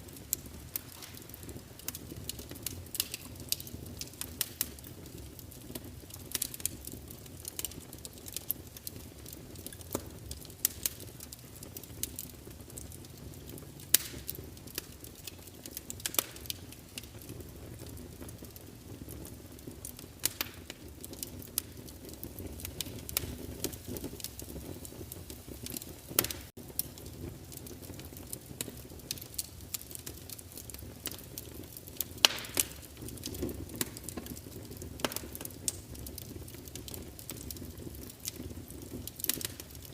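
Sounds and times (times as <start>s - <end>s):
rush of flame: 0.0s - 5.2s
wood fire crackling: 0.0s - 39.9s.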